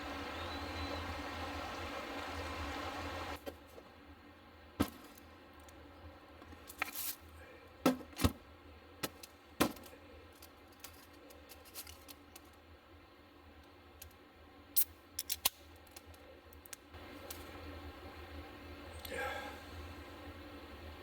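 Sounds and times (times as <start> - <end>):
small objects clicking and knocking: 14.8 - 17.5.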